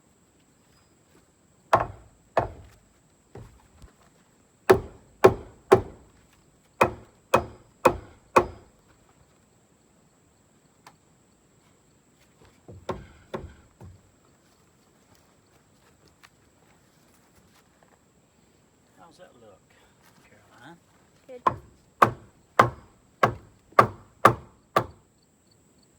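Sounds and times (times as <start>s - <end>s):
hatchet chopping into log: 1.7s - 2.8s, 4.7s - 6.1s, 6.8s - 8.7s, 12.8s - 13.9s, 21.4s - 25.0s.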